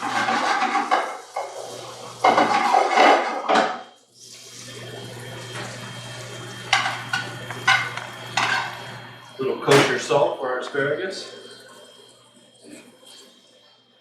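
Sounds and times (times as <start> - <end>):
utensils and dishes clattering: 0.0 - 3.9, 6.6 - 9.0, 9.6 - 10.2.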